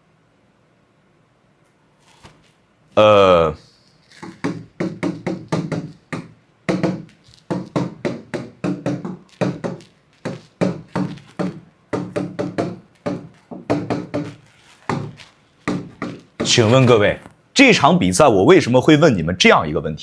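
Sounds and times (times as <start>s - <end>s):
pen writing on hard surface: 3.8s - 17.1s.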